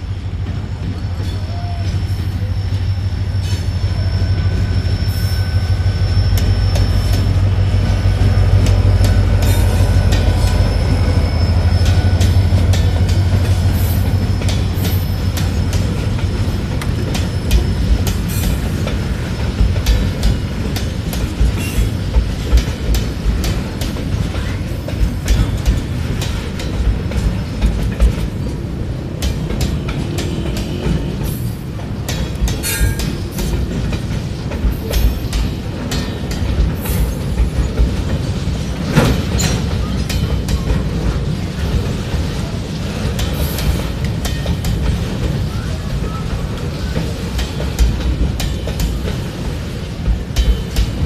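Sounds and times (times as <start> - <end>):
diesel locomotive engine droning: 0.0 - 51.0
train wheels clattering over rail joints: 4.4 - 51.0.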